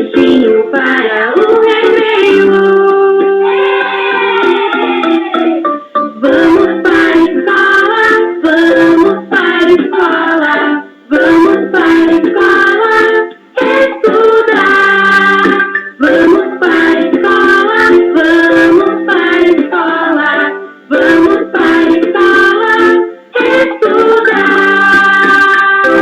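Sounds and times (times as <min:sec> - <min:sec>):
person singing: 0:00.0 - 0:26.0
plucked-string accompaniment: 0:04.3 - 0:07.6.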